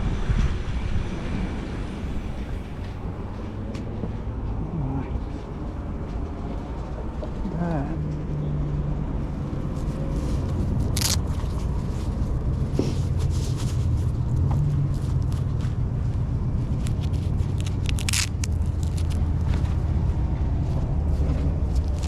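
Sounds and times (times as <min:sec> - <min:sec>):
wind on microphone: 0:00.0 - 0:07.2
road noise: 0:00.0 - 0:22.0
electric scooter riding: 0:01.7 - 0:07.4, 0:10.0 - 0:13.2, 0:14.1 - 0:22.0
low hum: 0:01.7 - 0:08.6.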